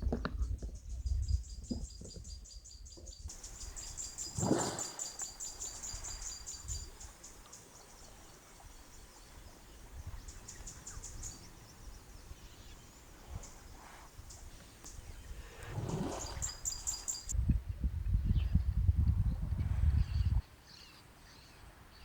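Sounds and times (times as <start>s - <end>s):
insects chirping: 0.8s - 17.4s.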